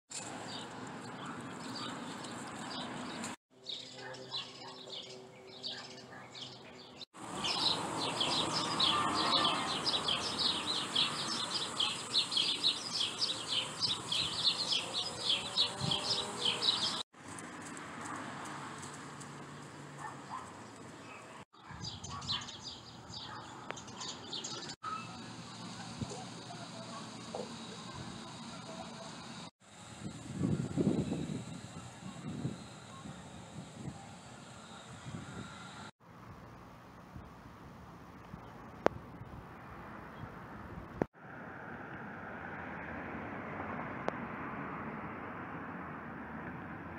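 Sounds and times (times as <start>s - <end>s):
small birds chirping: 0.4s - 17.0s, 19.6s - 29.5s.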